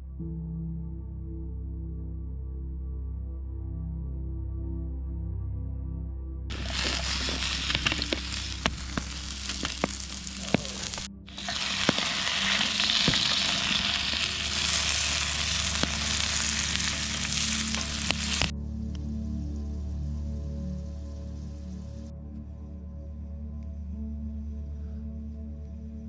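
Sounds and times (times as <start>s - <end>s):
soft background music: 0.0s - 26.0s
food sizzling in a pan: 6.5s - 18.5s.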